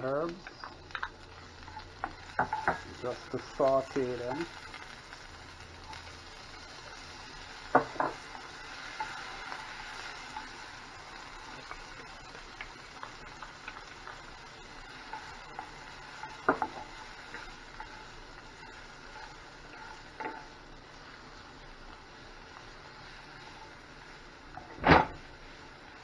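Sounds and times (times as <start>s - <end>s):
vegetables sizzling in oil: 0.0s - 26.0s
spatula stirring: 15.0s - 20.6s.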